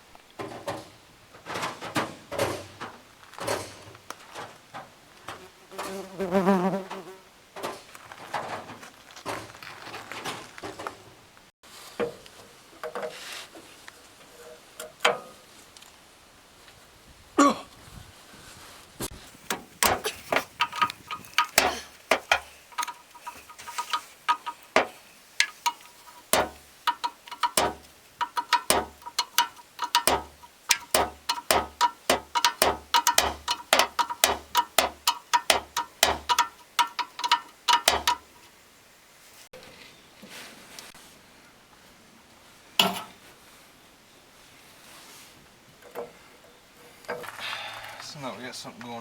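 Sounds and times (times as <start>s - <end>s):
ratchet wrench clicking: 25.4s - 38.2s.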